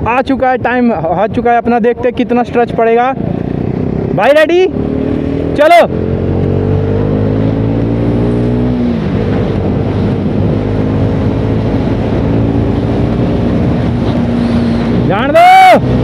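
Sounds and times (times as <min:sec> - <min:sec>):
motorcycle engine accelerating: 0:02.2 - 0:16.0.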